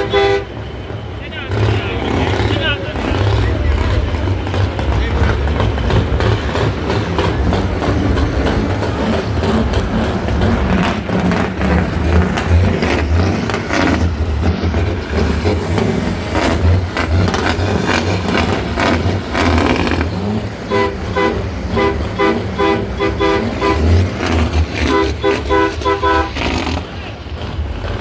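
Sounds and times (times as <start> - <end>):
horn short blasts: 0.0 - 0.7, 19.7 - 26.6
truck engine running: 0.0 - 28.0.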